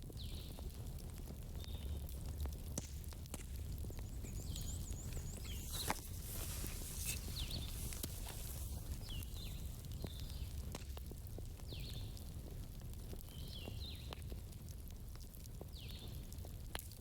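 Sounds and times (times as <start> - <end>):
campfire wood crackling and popping: 0.0 - 17.0.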